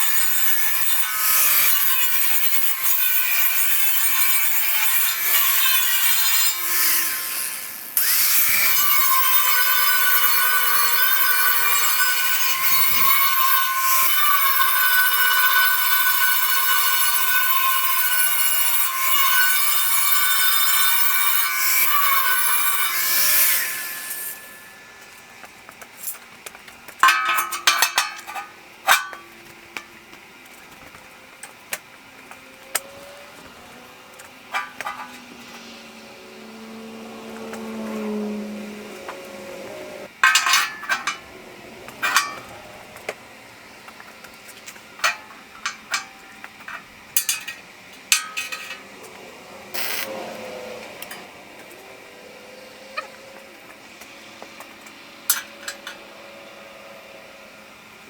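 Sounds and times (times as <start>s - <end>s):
metal tools clinking on metal: 27.0s - 29.4s, 34.5s - 35.3s, 40.2s - 41.3s, 41.9s - 42.6s, 45.0s - 48.9s, 55.3s - 56.1s.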